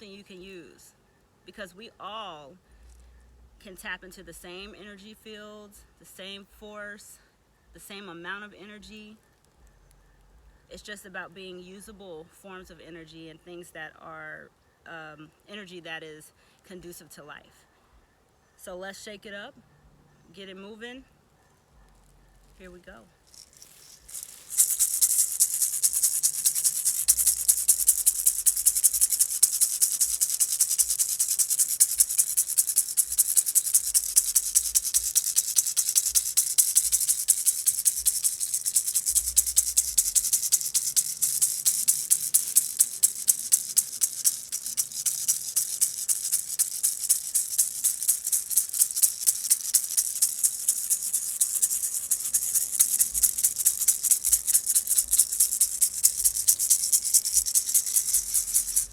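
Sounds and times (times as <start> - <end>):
hand rattle shaken: 2.8 - 3.1, 22.0 - 58.9.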